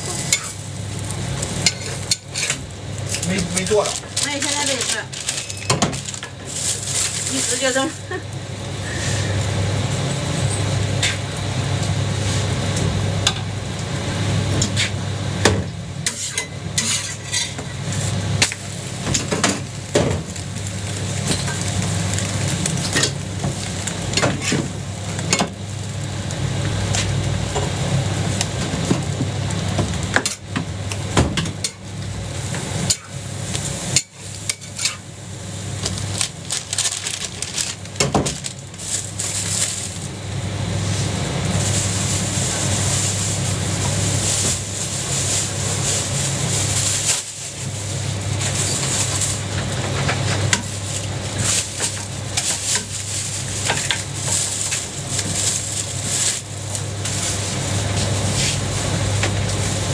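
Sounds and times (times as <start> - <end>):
food sizzling on griddle: 0.0 - 59.9
metal spatula scraping griddle: 16.0 - 17.6.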